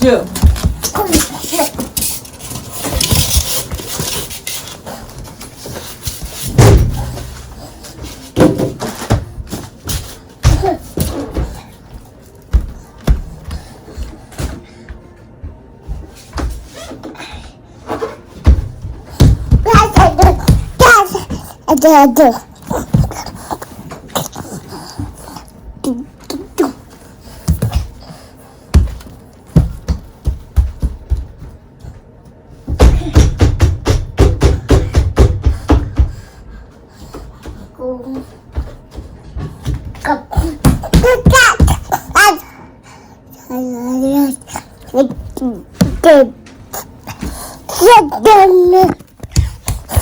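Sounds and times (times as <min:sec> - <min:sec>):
thumps and knocks indoors: 0:00.3 - 0:11.8, 0:17.8 - 0:21.9, 0:28.7 - 0:36.4, 0:37.0 - 0:42.4
irregular knocks and thumps: 0:32.6 - 0:36.3.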